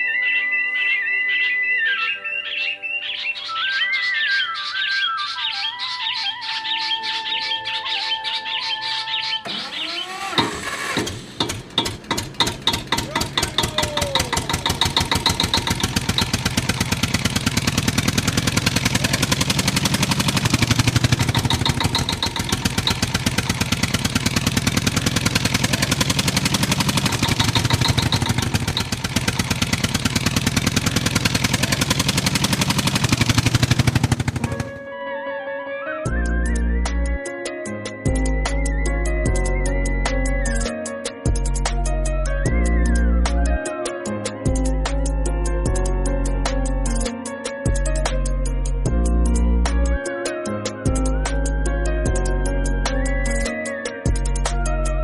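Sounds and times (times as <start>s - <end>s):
engine chugging: 9.5s - 34.9s.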